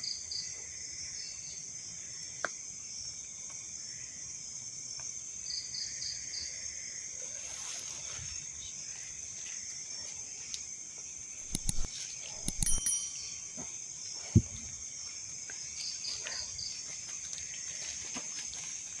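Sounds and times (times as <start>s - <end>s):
night insects chirping: 0.0s - 19.0s
sharp clicks and knocks: 11.4s - 13.4s.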